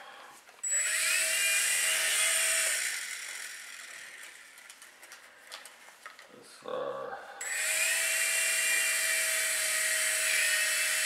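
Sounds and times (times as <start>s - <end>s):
rc helicopter motors whining: 0.6s - 4.9s, 7.4s - 11.0s.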